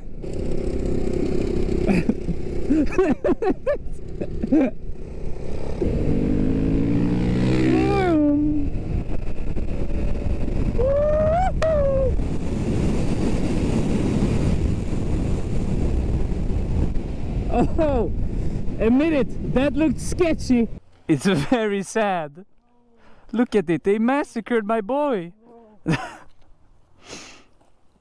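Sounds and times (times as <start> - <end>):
motorcycle engine running: 0.0 - 3.1
wind rush over microphone: 3.9 - 20.8
rising and falling pitched sounds: 5.7 - 12.2.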